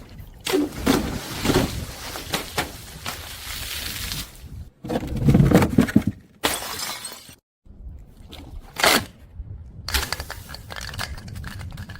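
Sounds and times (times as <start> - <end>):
glass bottles smashing: 6.4 - 7.4.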